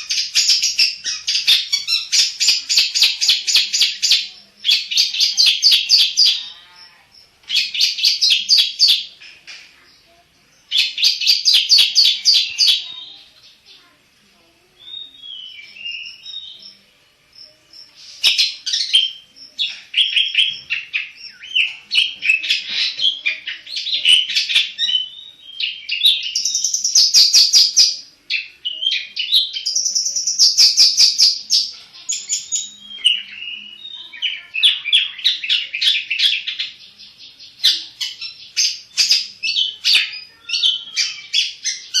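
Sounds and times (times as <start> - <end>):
shrike singing: 14.7 - 42.0.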